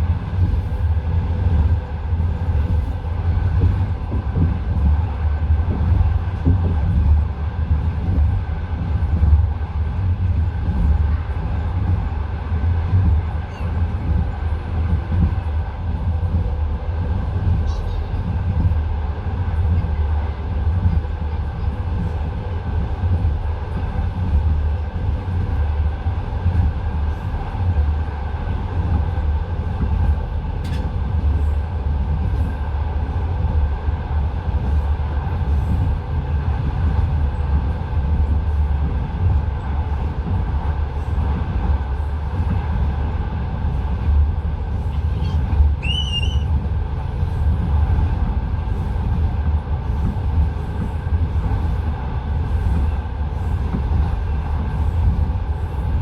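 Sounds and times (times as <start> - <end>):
train wheels rumbling on rails: 0.0 - 56.0
high squeal: 45.8 - 46.5.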